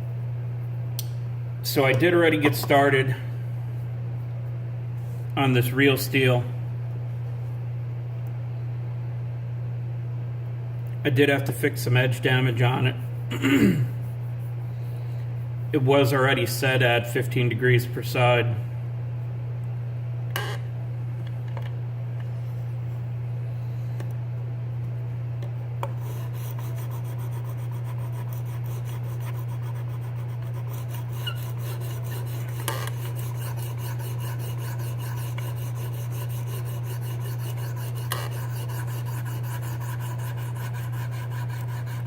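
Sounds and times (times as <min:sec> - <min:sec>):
steady low hum: 0:00.0 - 0:42.0
sharpening stone scraping knife: 0:30.5 - 0:42.0.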